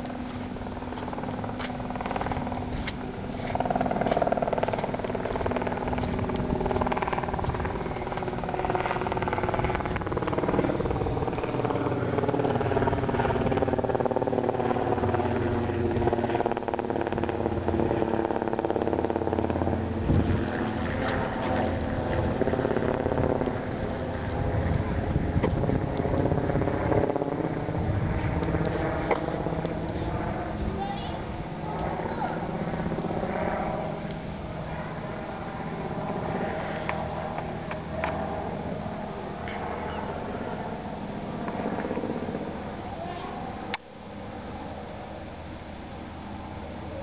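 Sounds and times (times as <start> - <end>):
car engine running: 0.0 - 20.4.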